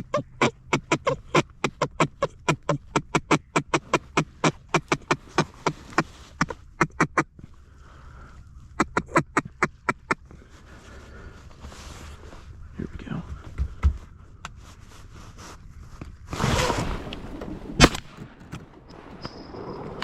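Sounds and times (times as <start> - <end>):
duck call quacks: 0.0 - 7.3, 8.8 - 10.4.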